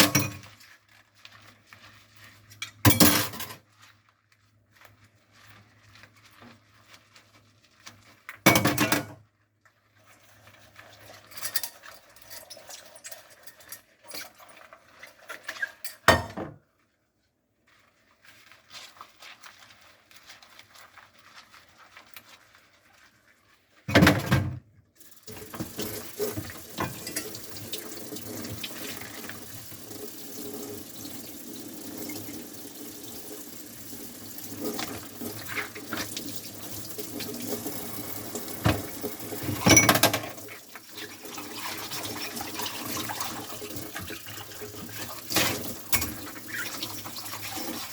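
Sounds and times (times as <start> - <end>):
tap water running: 0.0 - 0.5, 23.9 - 47.9
scrubbing dishes: 0.0 - 3.8, 17.7 - 47.9
dishes clattering: 2.9 - 3.6, 8.5 - 9.2, 15.9 - 16.6, 39.5 - 40.4.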